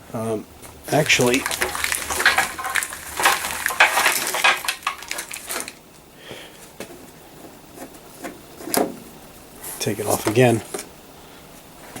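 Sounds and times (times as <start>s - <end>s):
metal parts clinking and scraping: 0.7s - 5.8s.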